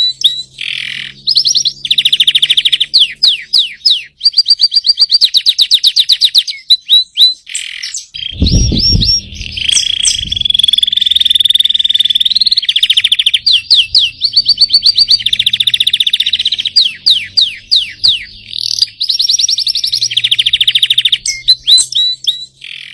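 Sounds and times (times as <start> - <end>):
canary singing trills: 0.0 - 22.9
low thump: 8.4 - 10.6.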